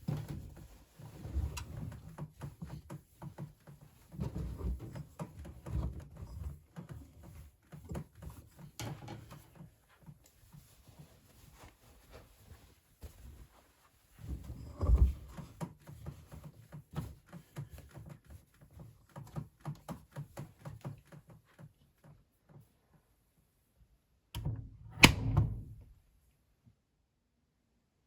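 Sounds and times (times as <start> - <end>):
washing machine heavy thunk: 24.4 - 25.9
washing machine knocks and clicks: 24.4 - 25.9.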